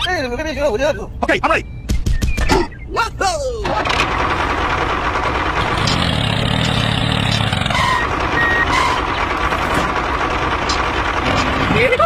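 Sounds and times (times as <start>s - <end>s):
short high electronic beeps: 7.8s - 9.1s.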